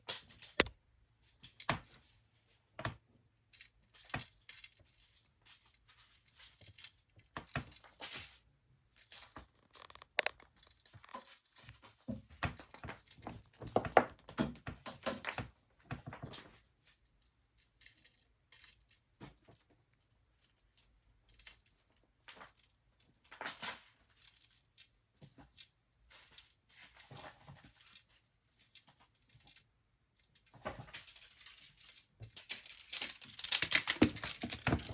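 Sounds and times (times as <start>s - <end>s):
packaging crinkling and tearing: 9.2s - 11.4s, 32.4s - 34.9s.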